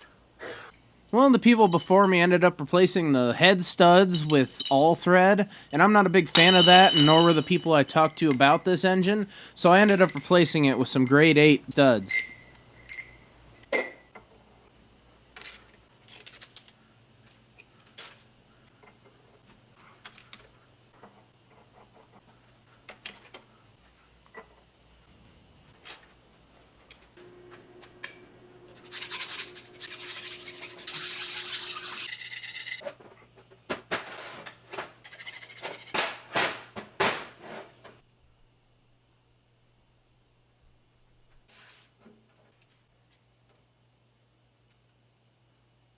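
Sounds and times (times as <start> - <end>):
metal tools clinking and scraping: 1.4 - 14.2.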